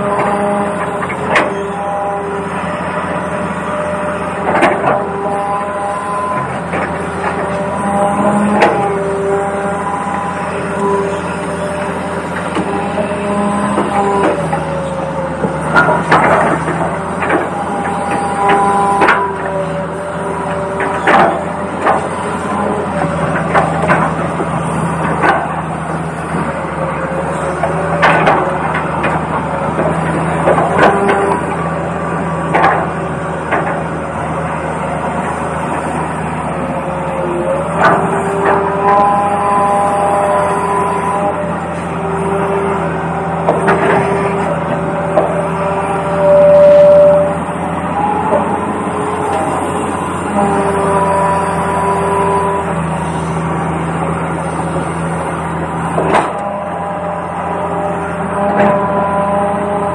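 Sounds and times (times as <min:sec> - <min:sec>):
toy excavator electronic hum: 0:16.1 - 0:59.9.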